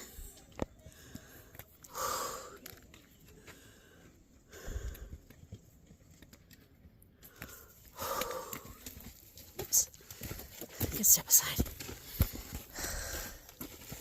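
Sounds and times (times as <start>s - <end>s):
person breathing hard: 0.9s - 2.6s, 3.4s - 5.2s, 7.2s - 8.8s, 12.6s - 13.5s.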